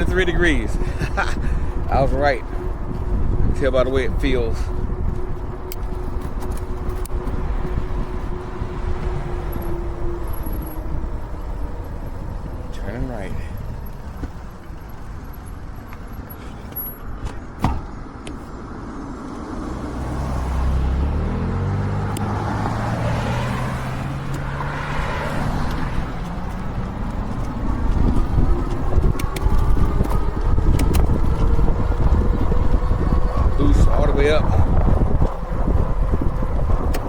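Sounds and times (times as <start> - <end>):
wind on microphone: 0.0 - 37.0
faint rising electric whine: 1.8 - 16.3
car passing by: 18.4 - 37.0.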